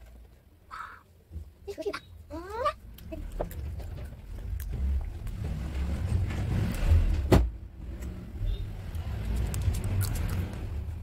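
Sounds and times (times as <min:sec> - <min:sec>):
low steady rumble: 0:02.3 - 0:11.0
crunchy chips being chewed: 0:09.2 - 0:10.6.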